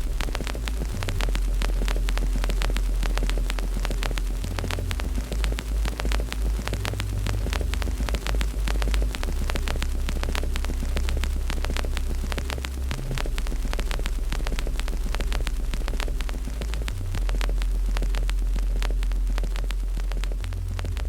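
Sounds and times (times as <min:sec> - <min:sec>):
deep low rumble: 0:00.0 - 0:21.0
fire crackling and popping: 0:00.0 - 0:21.0.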